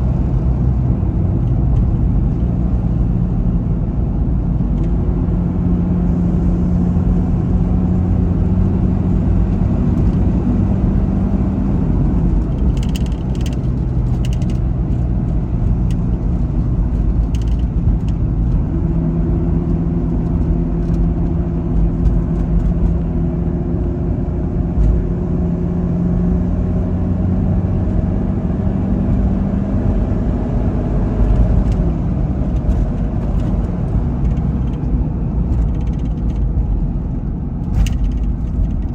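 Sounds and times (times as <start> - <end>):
diesel engine drone: 0.0 - 38.9
road rumble: 0.0 - 38.9.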